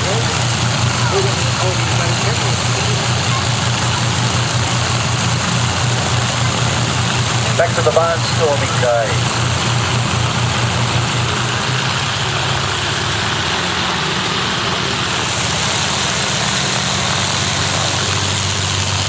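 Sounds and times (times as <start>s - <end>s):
piston aircraft engine humming: 0.0s - 19.0s.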